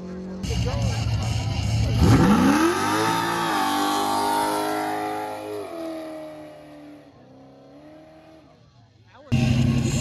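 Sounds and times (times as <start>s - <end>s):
car engine revving hard: 1.9s - 8.5s.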